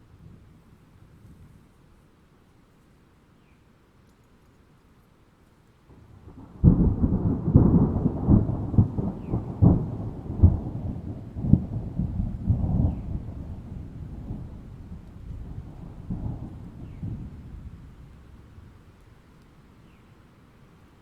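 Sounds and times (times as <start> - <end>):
rain: 0.0 - 21.0
thunderclap and rolling rumble: 5.9 - 19.0.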